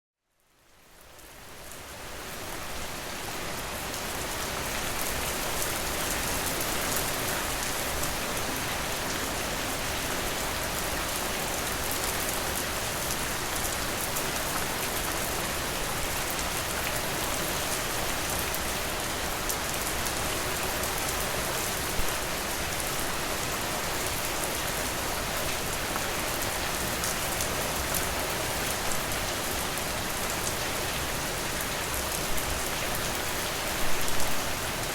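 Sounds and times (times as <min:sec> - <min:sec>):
steady rainfall: 0:00.4 - 0:34.9.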